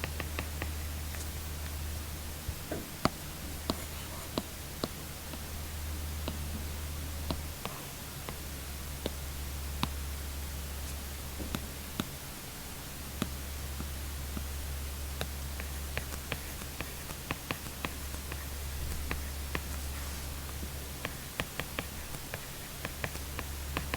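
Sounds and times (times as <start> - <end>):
low hum and hiss: 0.0 - 23.9
stylus tapping on a screen: 15.2 - 23.9.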